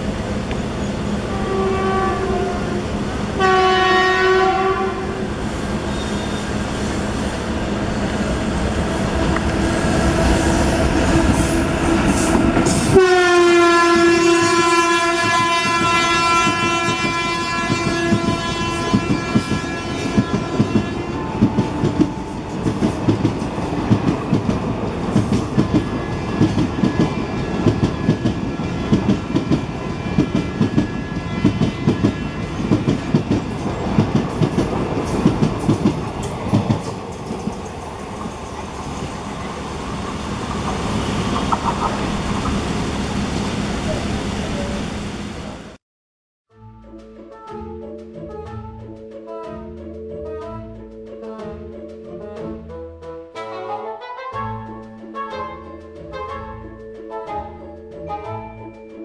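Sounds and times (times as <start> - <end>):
approaching train rumble: 0.0 - 45.8
locomotive horn blasts: 1.3 - 5.3, 11.4 - 22.5, 29.8 - 32.4, 53.4 - 58.7
clickety-clack of wheels on rail joints: 15.0 - 42.9.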